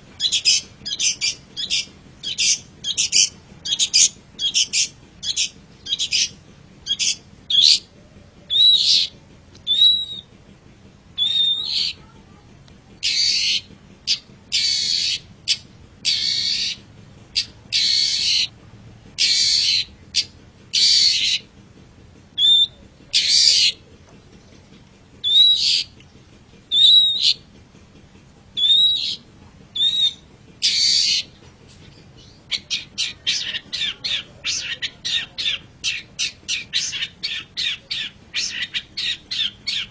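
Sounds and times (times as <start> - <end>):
bird chattering notes: 0.1 - 10.3, 11.2 - 12.2, 13.0 - 18.5, 19.2 - 21.5, 22.4 - 27.5, 28.6 - 39.9
bird slurred whistles: 8.5 - 10.3, 11.2 - 12.0, 13.0 - 16.8, 22.4 - 23.8, 25.2 - 25.9, 26.7 - 27.4, 28.6 - 31.3.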